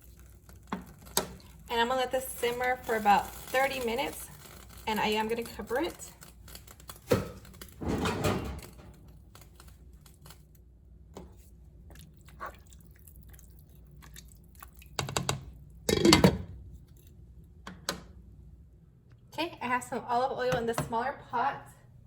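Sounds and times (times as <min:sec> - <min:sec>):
pots and utensils clattering: 0:07.8 - 0:09.0, 0:15.9 - 0:16.5.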